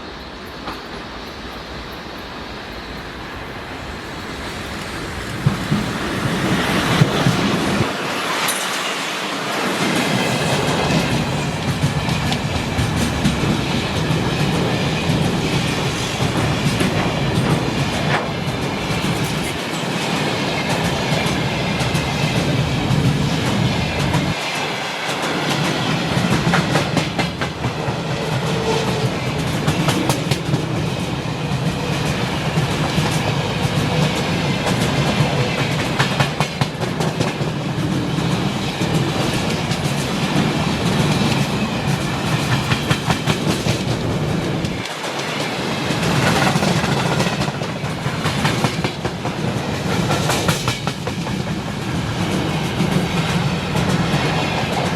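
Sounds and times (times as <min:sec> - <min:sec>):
freight train rolling past: 0:00.0 - 0:54.9.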